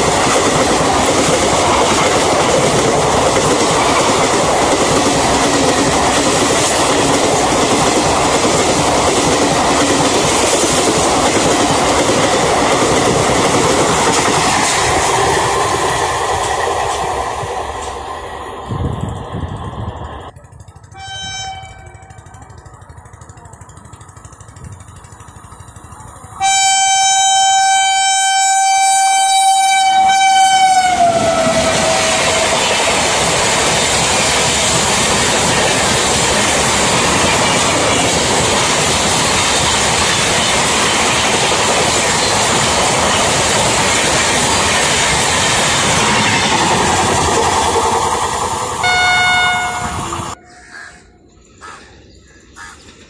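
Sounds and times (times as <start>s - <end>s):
train coaches rushing past: 0.0s - 53.0s
locomotive horn blast: 20.8s - 22.4s, 26.4s - 32.6s, 48.8s - 50.4s.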